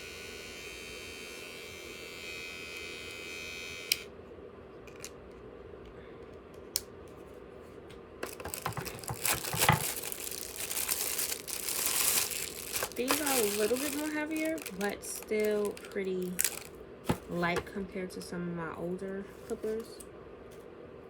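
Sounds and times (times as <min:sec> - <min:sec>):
electric trimmer buzzing: 0:00.0 - 0:04.1, 0:08.2 - 0:16.7
rustling and crinkling: 0:07.1 - 0:17.8.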